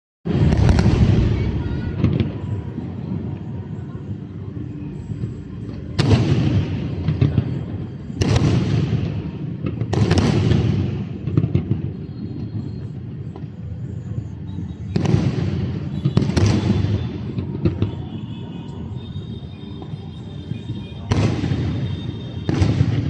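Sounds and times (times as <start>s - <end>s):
fireworks bangs: 0.3s - 3.8s, 5.0s - 23.0s
fireworks crackling: 0.3s - 23.0s.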